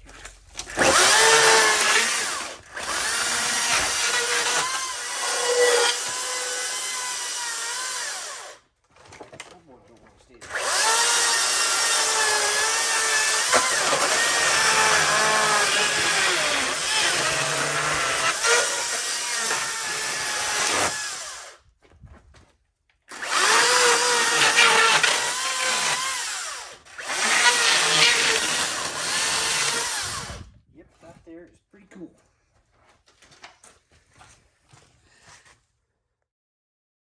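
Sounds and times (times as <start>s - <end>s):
electric chainsaw cutting wood: 0.6s - 8.6s, 10.5s - 21.6s, 23.1s - 30.5s.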